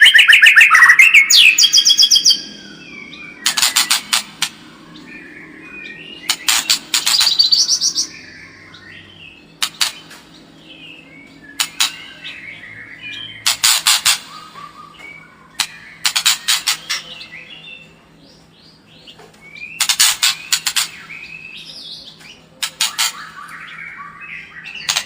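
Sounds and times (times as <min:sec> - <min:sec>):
bird singing warbled whistles: 0:00.0 - 0:03.9
harsh rattling bird calls: 0:00.0 - 0:25.0.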